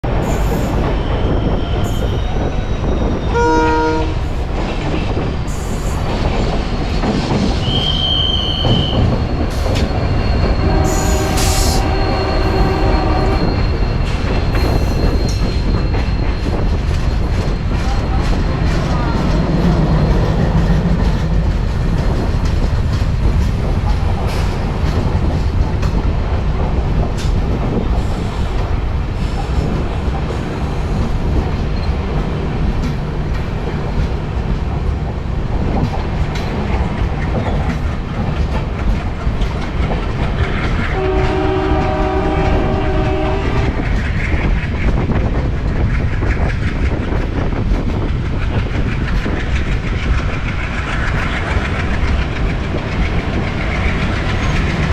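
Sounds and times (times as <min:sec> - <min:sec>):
train rumbling past: 0:00.0 - 0:54.9
train horn blast: 0:03.3 - 0:04.2, 0:10.5 - 0:13.6, 0:40.9 - 0:43.8.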